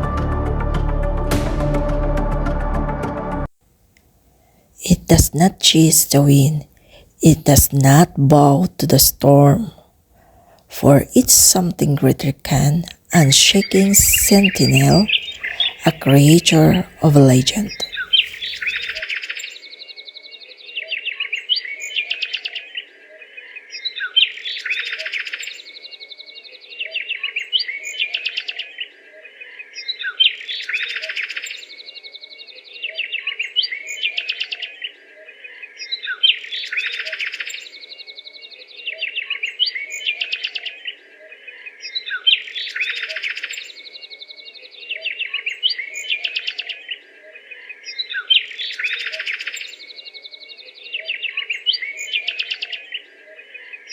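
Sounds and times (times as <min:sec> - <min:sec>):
steady high tone: 0:10.8 - 0:17.8
birds chattering: 0:13.6 - 0:18.9.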